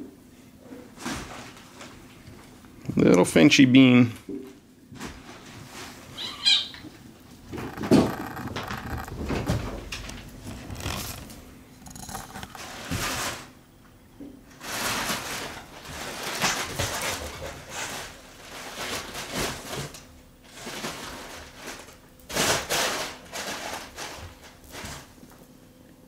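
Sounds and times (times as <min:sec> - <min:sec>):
rustling and scraping: 0:00.5 - 0:02.6, 0:04.3 - 0:13.6, 0:14.5 - 0:25.5.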